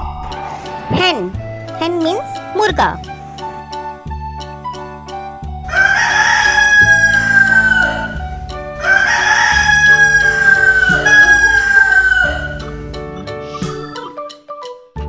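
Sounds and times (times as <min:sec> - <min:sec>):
background music: 0:00.0 - 0:15.0
rooster crowing: 0:05.6 - 0:12.7.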